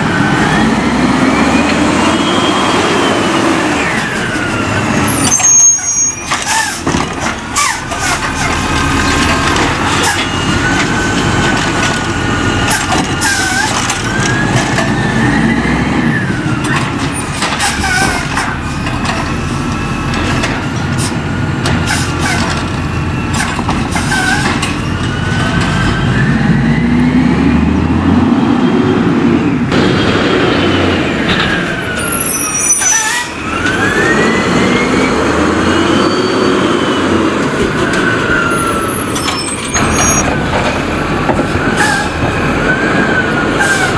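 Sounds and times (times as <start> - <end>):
refuse truck engine: 0.0 - 43.9
hydraulic whine: 28.5 - 43.9.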